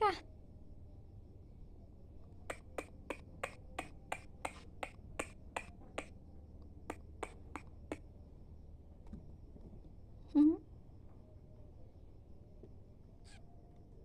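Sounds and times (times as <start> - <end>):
person clicking to call cat: 2.4 - 6.2, 6.9 - 8.0.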